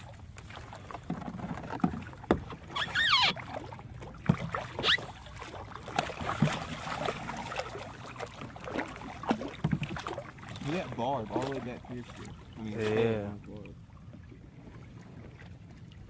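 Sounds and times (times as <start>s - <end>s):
water sloshing: 0.0s - 16.0s
knocks on kayak: 1.1s - 2.6s
squealing glide: 2.6s - 3.5s, 4.8s - 5.1s.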